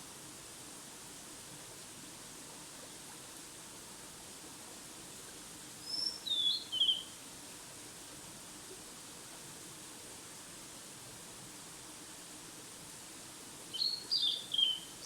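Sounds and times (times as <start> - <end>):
songbird singing: 5.9 - 7.1, 13.7 - 15.0.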